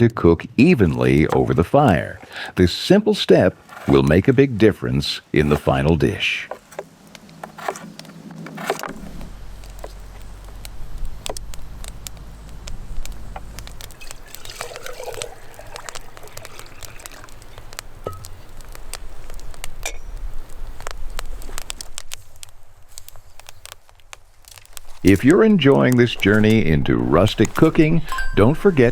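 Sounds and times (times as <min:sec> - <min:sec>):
knife peeling potatoes: 0:07.4 - 0:10.6
light water splashing: 0:11.5 - 0:19.4.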